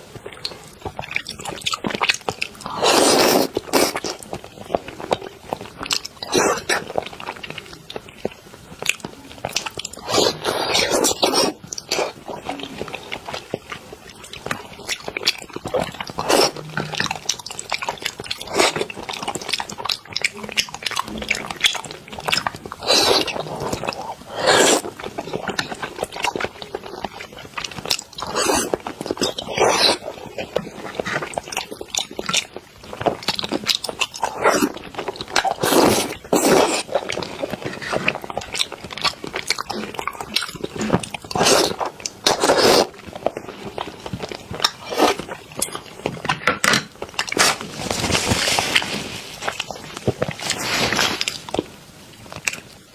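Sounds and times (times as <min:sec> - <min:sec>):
chewing and mouth sounds: 0:00.0 - 0:52.8.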